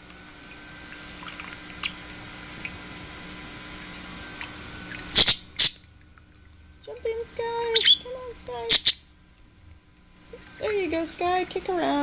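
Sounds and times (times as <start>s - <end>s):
birds splashing in water: 0.4s - 8.9s.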